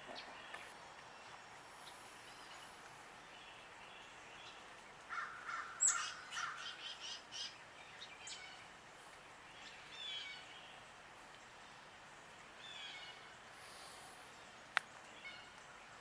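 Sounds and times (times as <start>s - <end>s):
harsh crow-like calls: 5.1s - 6.8s.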